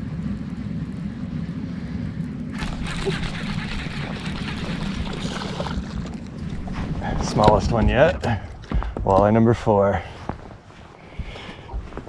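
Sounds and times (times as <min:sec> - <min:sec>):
steady low hum: 0:00.0 - 0:12.0
water splashing beside boat: 0:02.6 - 0:07.1.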